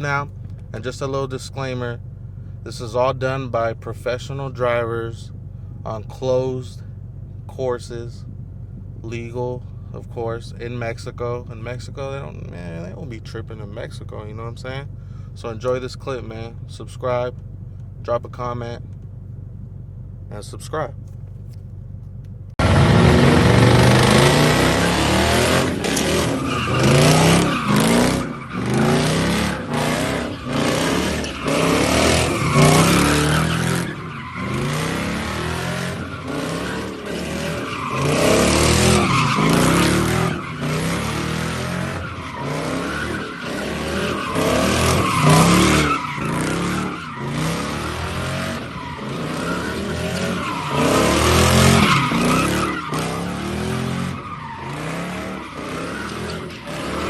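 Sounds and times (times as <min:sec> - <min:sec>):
car engine revving: 0:00.0 - 0:57.0
tyres squealing: 0:23.3 - 0:57.0.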